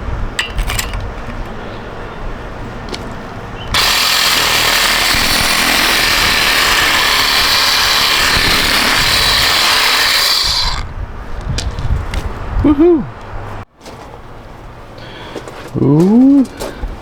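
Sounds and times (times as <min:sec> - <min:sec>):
power tool cutting metal: 0:03.7 - 0:10.8.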